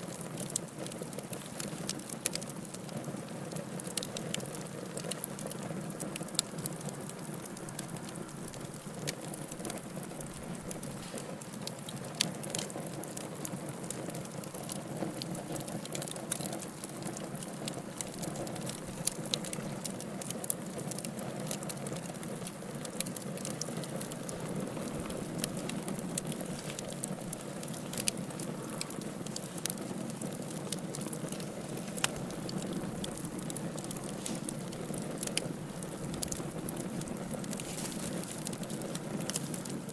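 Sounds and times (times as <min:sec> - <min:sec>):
wood fire crackling: 0:00.0 - 0:39.9
sharp pops of fire: 0:22.9 - 0:39.9.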